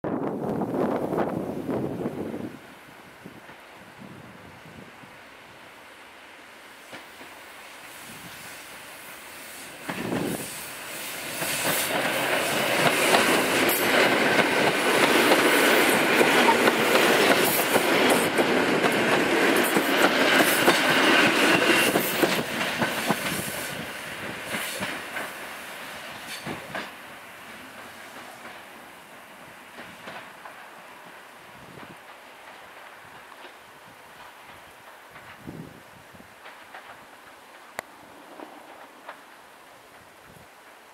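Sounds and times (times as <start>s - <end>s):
electric train passing: 0.2s - 40.9s
wheels clicking over rail joints: 9.8s - 25.5s, 26.1s - 28.8s, 29.7s - 40.9s.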